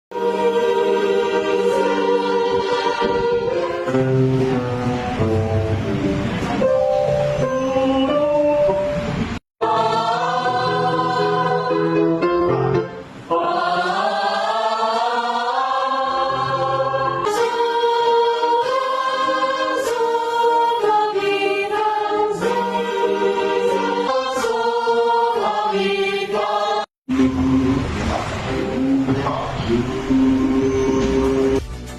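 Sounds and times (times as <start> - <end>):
choir singing in parts: 0.1 - 5.7, 9.6 - 31.6.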